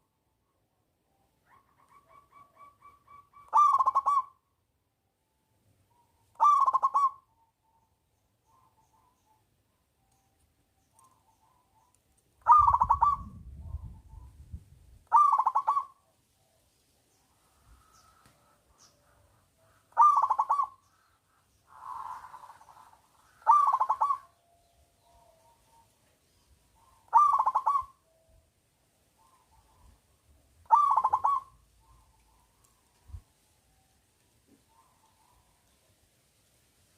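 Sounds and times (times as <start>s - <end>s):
dove cooing: 1.4s - 4.3s, 6.4s - 7.2s, 12.4s - 14.3s, 15.1s - 16.0s, 18.9s - 20.8s, 21.7s - 24.3s, 26.8s - 28.2s, 30.6s - 33.2s
fainter dove cooing: 1.4s - 4.4s, 6.4s - 7.3s, 10.9s - 14.4s, 15.1s - 16.6s, 17.7s - 21.0s, 21.7s - 24.4s, 26.8s - 28.3s, 30.6s - 33.2s.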